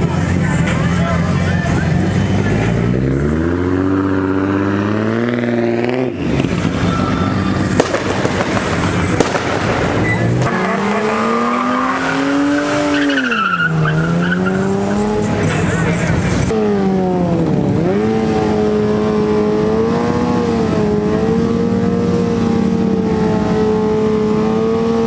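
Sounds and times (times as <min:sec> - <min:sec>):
car engine revving: 0:00.0 - 0:25.0
sharp pops: 0:07.7 - 0:10.9
tyre squeal: 0:10.0 - 0:16.4.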